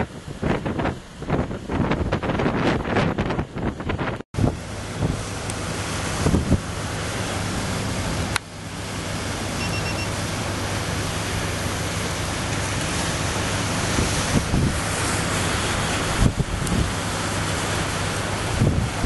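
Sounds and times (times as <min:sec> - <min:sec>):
wind buffeting microphone: 0:00.0 - 0:08.3, 0:13.1 - 0:19.0
sea waves breaking: 0:00.0 - 0:19.0.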